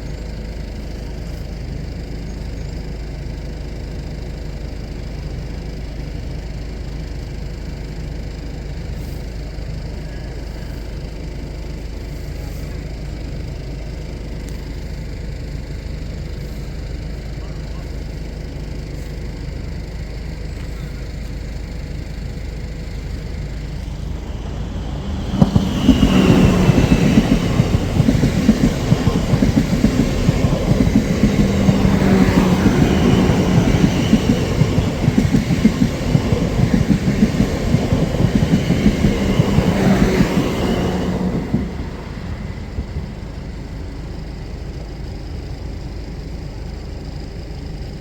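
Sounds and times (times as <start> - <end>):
train low hum: 0.0 - 48.0
train wheels clattering on rails: 20.4 - 45.7.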